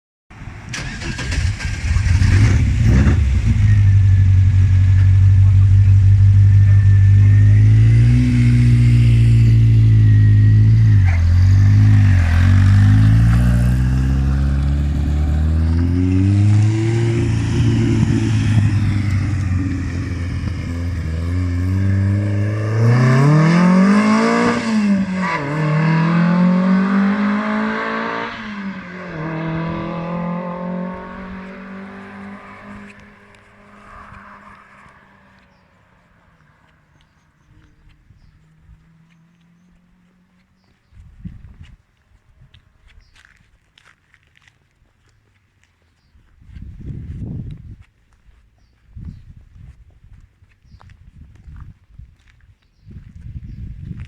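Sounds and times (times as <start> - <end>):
racing car engine revving hard: 5.5 - 35.4.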